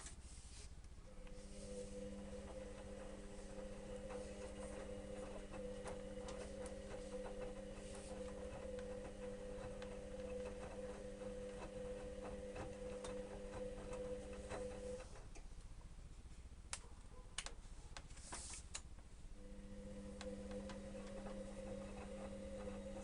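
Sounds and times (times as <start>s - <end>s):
washing machine motor hum: 1.0s - 15.4s, 19.4s - 23.0s.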